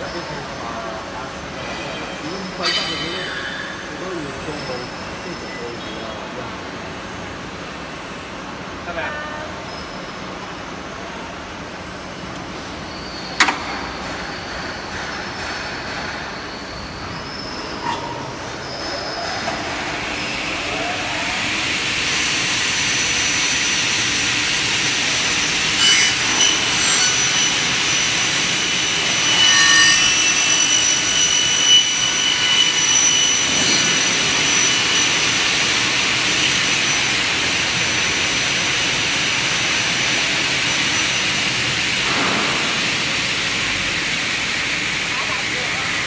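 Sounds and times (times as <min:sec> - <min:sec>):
high ringing tones of blades cutting: 0:02.3 - 0:05.0, 0:24.9 - 0:38.0
saw blades whining: 0:21.4 - 0:41.5.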